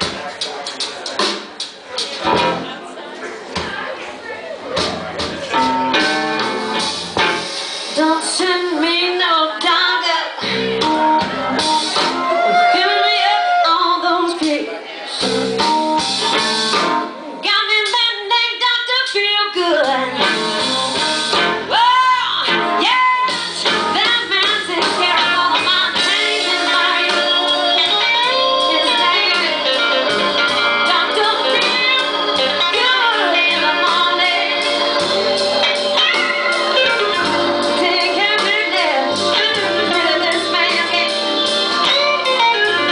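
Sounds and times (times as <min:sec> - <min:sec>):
electric guitar and band: 0:00.0 - 0:02.9, 0:04.7 - 0:18.1, 0:19.7 - 0:42.9
woman singing: 0:08.0 - 0:10.6, 0:12.5 - 0:14.7, 0:17.4 - 0:20.3, 0:21.7 - 0:42.9.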